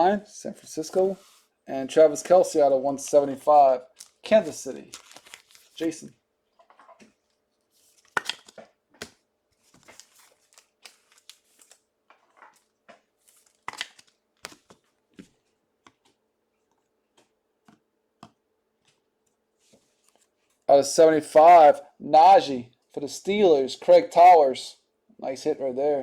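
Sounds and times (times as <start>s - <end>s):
card wrappers crinkling: 3.3s - 6.1s, 7.2s - 15.3s.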